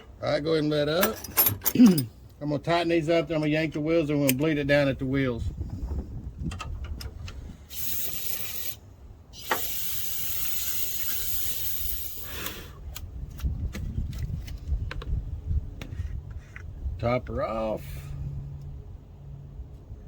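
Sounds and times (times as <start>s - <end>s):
low wind rumble: 2.2s - 9.4s, 11.3s - 20.0s
hissing spray: 7.7s - 8.8s, 9.4s - 12.6s.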